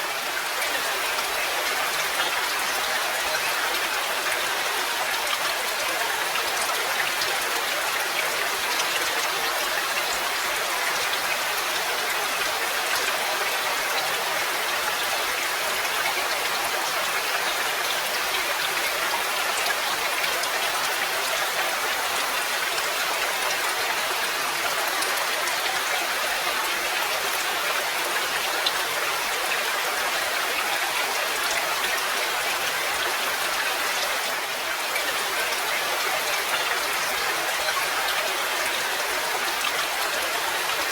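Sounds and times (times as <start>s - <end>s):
rain patter: 0.0s - 40.9s.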